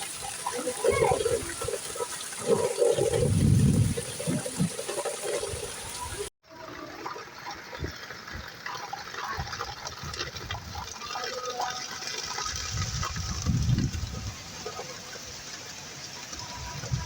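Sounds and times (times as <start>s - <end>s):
steady rain: 0.0s - 6.3s
running and splashing water: 0.0s - 17.0s.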